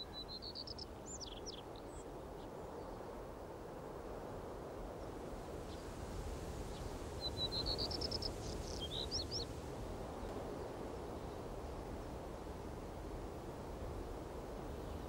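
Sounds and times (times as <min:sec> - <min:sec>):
low outdoor background noise: 0:00.0 - 0:15.0
small bird chirping: 0:07.3 - 0:09.5.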